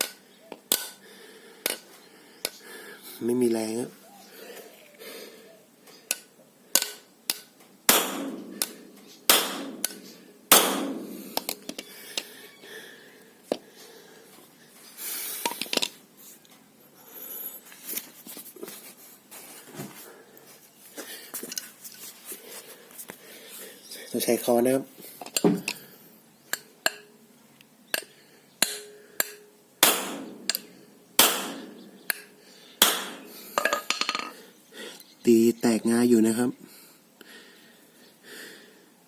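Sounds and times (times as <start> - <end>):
hammer strikes ringing: 6.8 - 11.6, 28.6 - 33.4.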